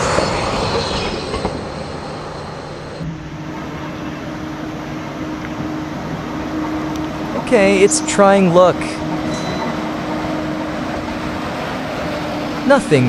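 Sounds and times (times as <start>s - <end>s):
steady hum: 0.0s - 13.0s
train wheels rumbling on track: 0.0s - 13.0s
thin high squeal: 3.8s - 11.0s.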